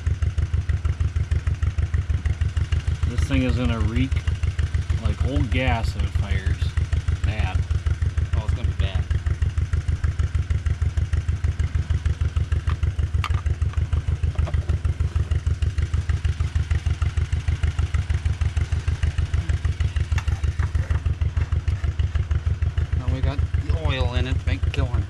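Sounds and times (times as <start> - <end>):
tractor engine idling: 0.0 - 25.0.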